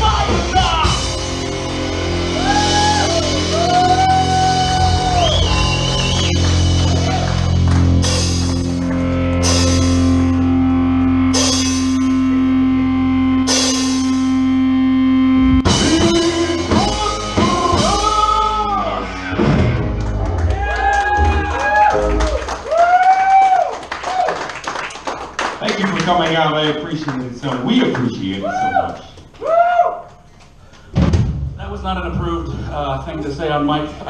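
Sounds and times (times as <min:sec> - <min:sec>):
live rock band playing: 0:00.0 - 0:22.6
cymbal crashes: 0:13.5 - 0:14.4.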